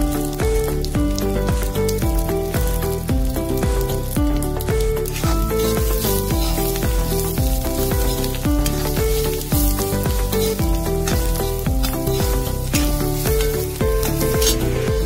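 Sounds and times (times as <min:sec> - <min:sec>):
background music with bass line: 0:00.0 - 0:15.0
chillies sizzling in hot oil: 0:00.0 - 0:15.0
spatula stirring: 0:04.8 - 0:15.0.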